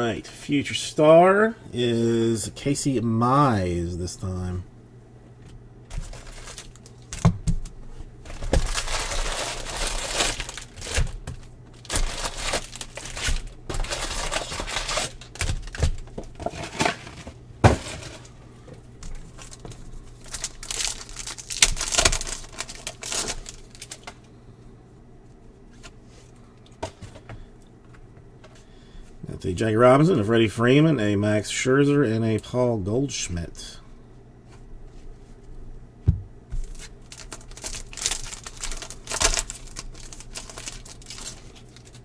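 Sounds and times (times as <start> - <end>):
wrappers tearing and crinkling: 5.9 - 18.4, 19.0 - 24.3, 36.6 - 42.0.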